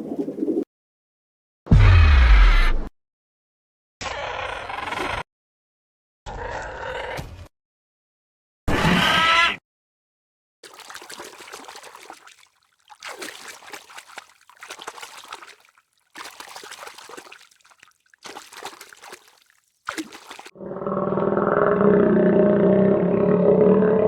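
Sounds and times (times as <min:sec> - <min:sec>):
trickling splashing water: 0:10.6 - 0:20.5.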